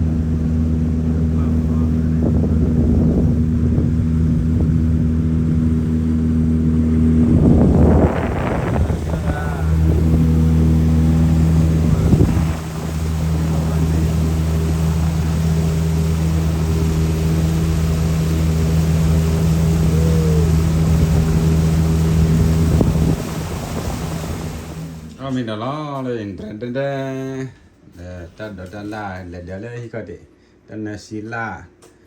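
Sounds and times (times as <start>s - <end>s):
boat motor droning: 0.0s - 25.3s.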